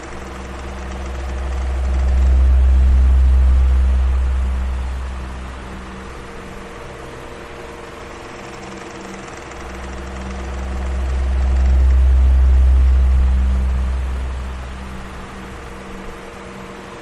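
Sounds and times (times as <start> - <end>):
electric fan whirring: 0.0 - 17.0
deep low rumble: 0.1 - 6.9, 9.7 - 16.2.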